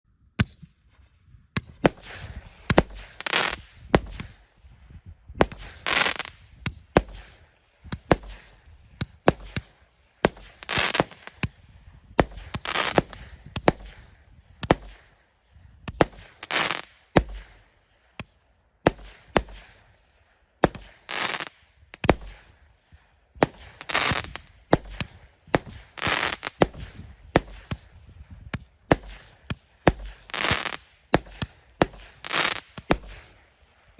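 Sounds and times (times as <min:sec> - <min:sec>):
firework bursts crackling: 0:01.8 - 0:04.4, 0:05.4 - 0:06.4, 0:09.2 - 0:11.5, 0:12.2 - 0:14.1, 0:16.0 - 0:17.7, 0:20.6 - 0:22.6, 0:23.4 - 0:27.9, 0:28.9 - 0:33.4.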